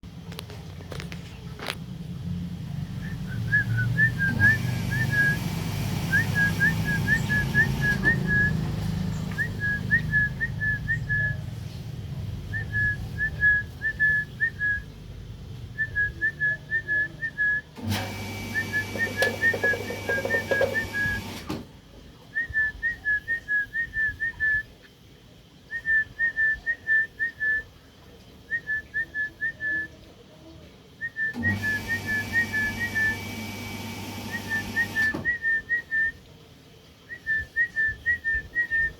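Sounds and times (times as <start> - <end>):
low rumbling noise: 0.0 - 16.8.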